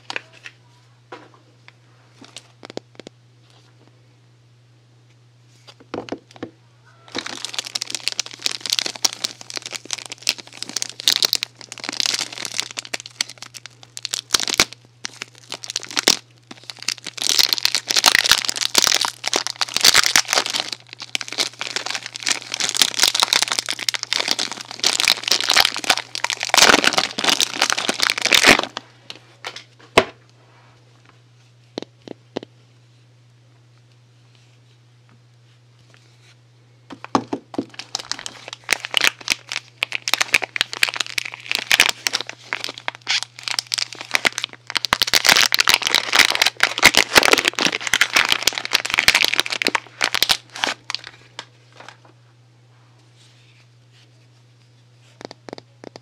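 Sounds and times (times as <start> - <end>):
soap packaging crinkling: 7.1 - 28.8, 37.0 - 52.0.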